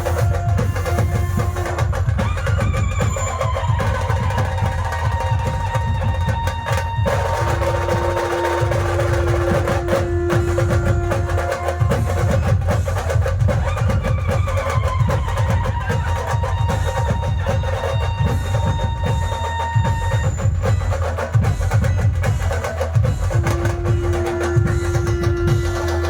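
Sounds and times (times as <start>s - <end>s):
fast drumming band music: 0.0s - 26.0s
long held note: 23.5s - 26.0s.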